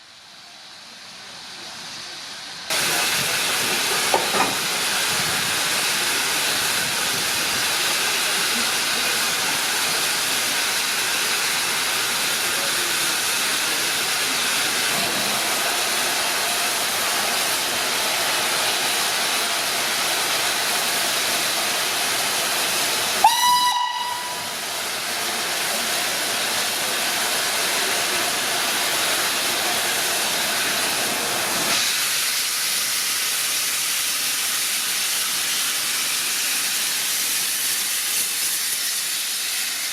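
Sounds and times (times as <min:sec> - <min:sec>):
steam locomotive hissing: 0:00.0 - 0:39.9
steam whistle blast: 0:23.2 - 0:24.6.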